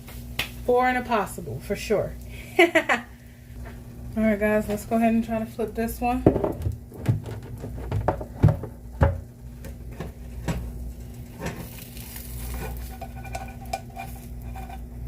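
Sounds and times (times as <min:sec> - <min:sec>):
pancake sizzling in oil: 0:09.8 - 0:15.0.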